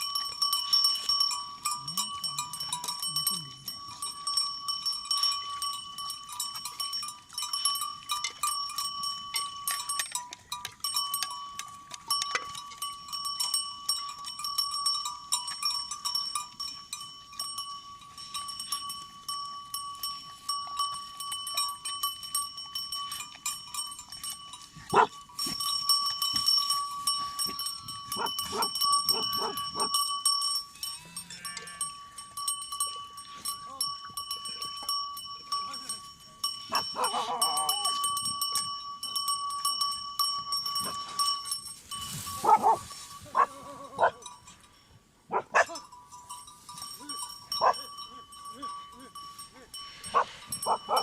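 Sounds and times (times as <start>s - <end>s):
livestock bells ringing: 0.0s - 51.0s.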